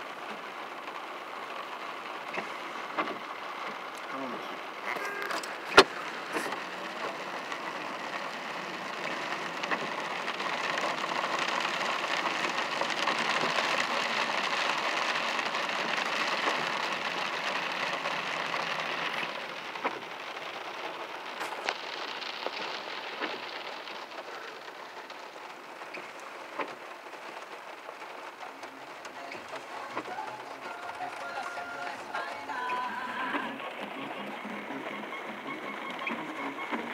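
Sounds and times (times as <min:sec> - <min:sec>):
heavy rain hissing: 0:00.0 - 0:36.9.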